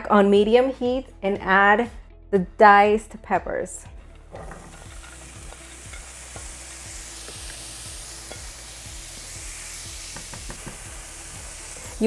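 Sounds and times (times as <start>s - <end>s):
peppers sizzling in frying pan: 4.3s - 12.0s.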